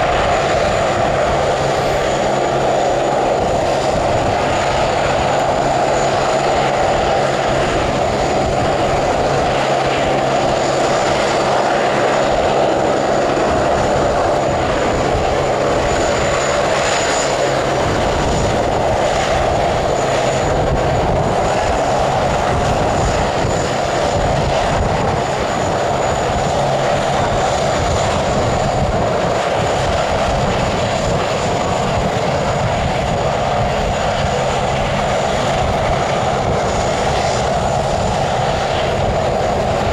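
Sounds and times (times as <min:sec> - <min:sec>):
jet engines running: 0:00.0 - 0:39.9
thin high whine: 0:00.4 - 0:06.1.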